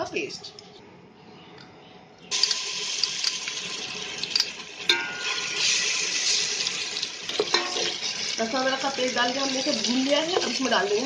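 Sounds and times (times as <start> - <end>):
paste sizzling in hot oil: 2.3 - 11.0.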